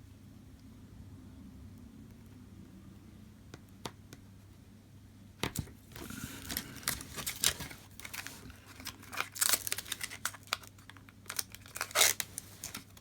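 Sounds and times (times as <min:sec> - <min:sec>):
plastic film crinkling: 0:06.0 - 0:13.0.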